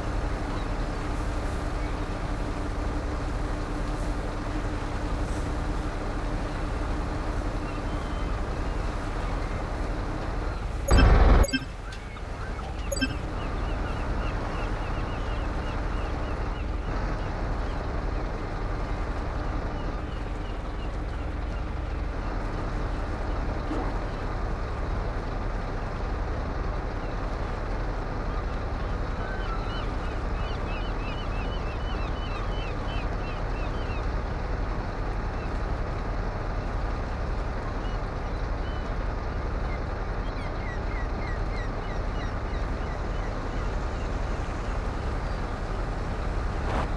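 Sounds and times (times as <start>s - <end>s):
short high chirps: 10.9s - 11.8s, 12.9s - 13.4s
truck engine rumble: 41.1s - 46.9s.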